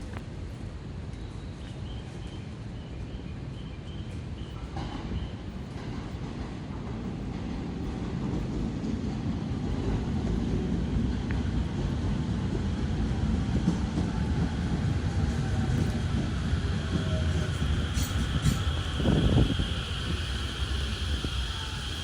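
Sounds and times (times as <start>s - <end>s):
train rumbling along tracks: 0.0s - 22.0s
wind buffeting microphone: 5.7s - 22.0s.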